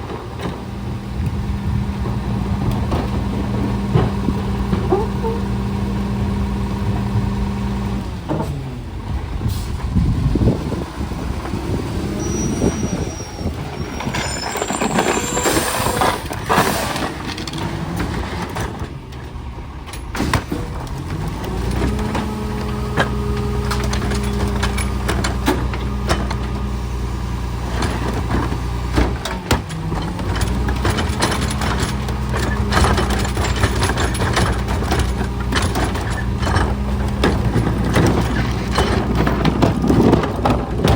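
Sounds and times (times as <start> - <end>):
garbage truck diesel engine: 0.0 - 40.9
air brake hiss: 9.4 - 9.8
clanks and knocks: 14.0 - 26.7, 27.7 - 40.9.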